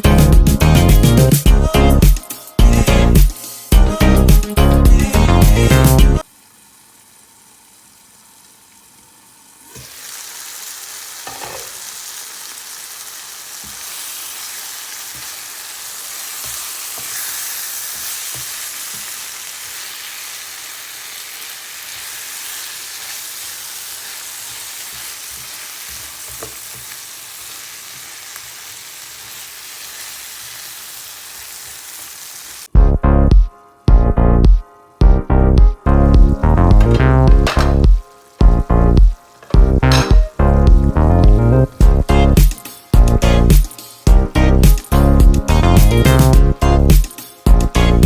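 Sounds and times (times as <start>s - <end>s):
green beans sizzling in oil: 6.2s - 32.8s, 36.1s - 45.0s
spatula knocking against pan: 36.7s - 38.6s, 39.4s - 40.5s.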